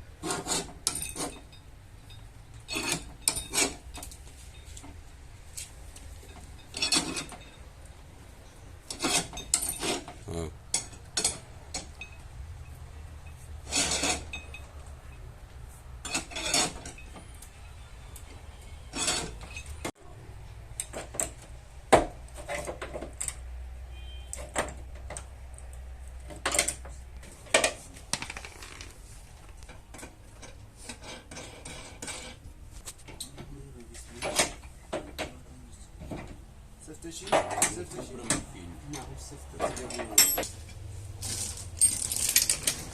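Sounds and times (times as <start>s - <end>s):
tools clinking on car metal: 0.4s - 5.0s, 6.0s - 7.8s, 8.8s - 15.2s, 16.0s - 17.8s, 37.1s - 40.8s, 41.4s - 42.9s.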